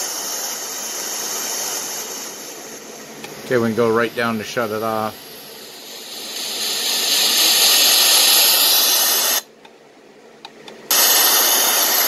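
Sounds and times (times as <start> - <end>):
white noise machine hiss: 0.0 - 12.0.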